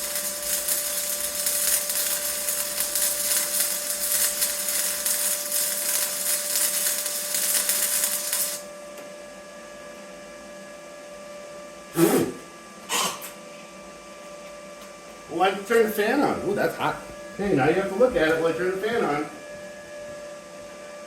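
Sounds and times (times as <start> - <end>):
welder arc crackling: 0.0 - 8.7.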